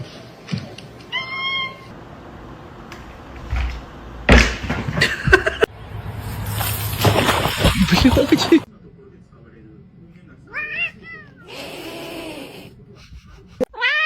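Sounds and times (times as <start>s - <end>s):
cat meowing: 10.5s - 12.7s, 13.7s - 14.0s.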